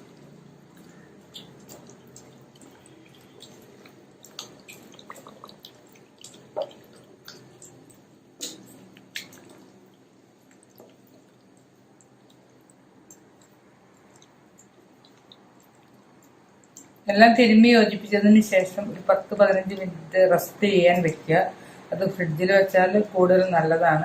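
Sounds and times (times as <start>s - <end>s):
hands kneading wet chicken: 0.0s - 17.0s.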